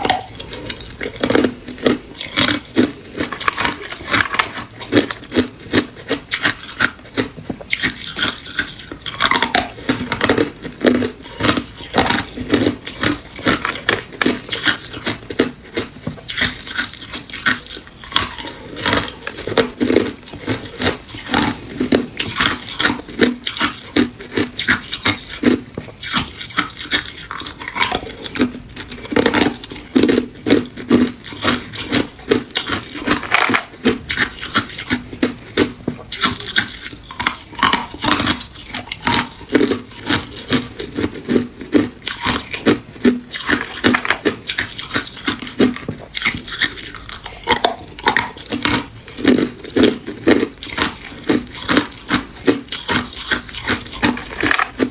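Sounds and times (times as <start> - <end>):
ice cubes crunching being chewed: 0.0 - 54.9.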